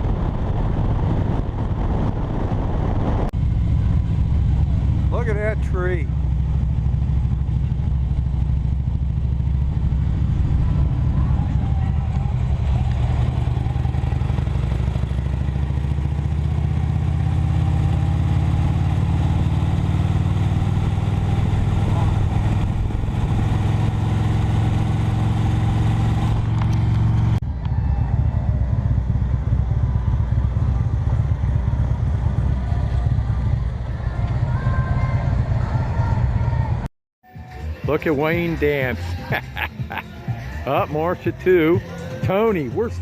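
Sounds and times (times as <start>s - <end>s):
wind noise: 0.0s - 5.0s, 20.5s - 28.6s
motorcycle engine running: 0.0s - 43.0s.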